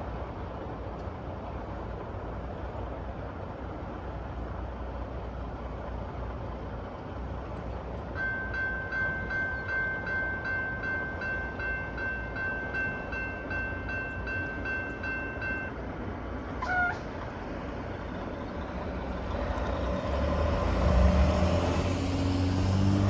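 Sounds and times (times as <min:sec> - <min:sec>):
railroad crossing bell dinging: 0:08.1 - 0:15.9.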